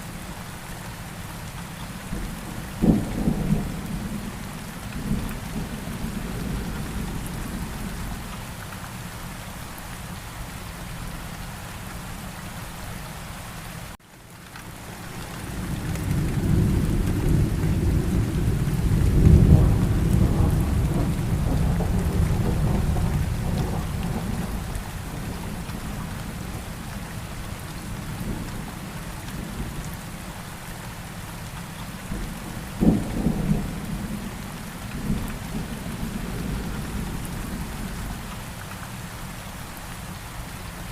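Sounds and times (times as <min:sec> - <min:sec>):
steady rain falling: 0:00.0 - 0:40.9
rolling thunder rumble: 0:02.1 - 0:08.3, 0:15.4 - 0:29.8, 0:32.0 - 0:38.3.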